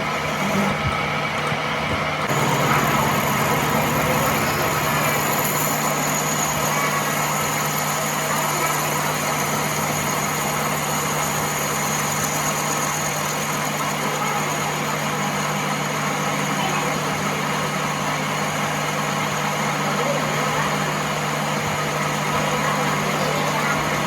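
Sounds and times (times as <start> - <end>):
workshop machinery running: 0.0 - 24.0
thin high whine: 2.3 - 14.6.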